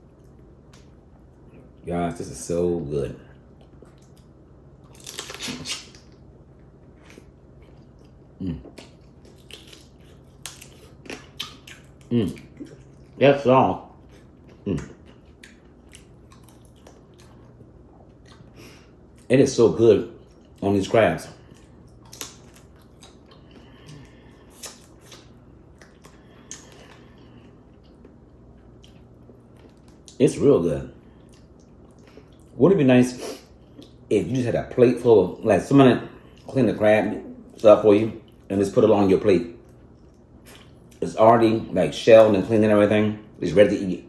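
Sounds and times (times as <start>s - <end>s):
wet crunching and chewing: 3.3s - 19.3s, 20.1s - 30.2s.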